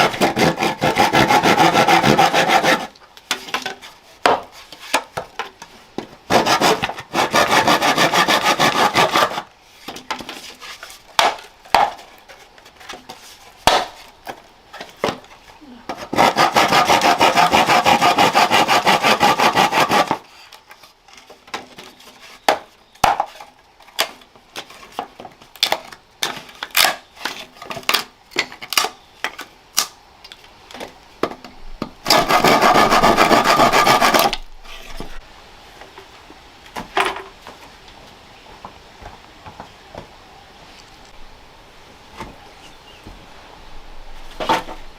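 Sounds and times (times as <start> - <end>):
hand saw sawing wood: 0.0 - 5.1, 6.3 - 9.5, 15.9 - 20.4, 32.0 - 35.2.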